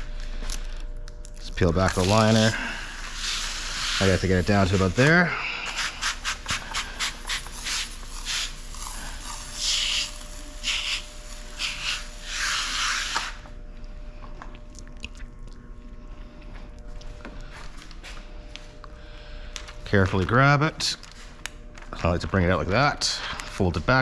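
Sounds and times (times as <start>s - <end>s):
film peeling crinkly hiss: 0.2s - 13.5s.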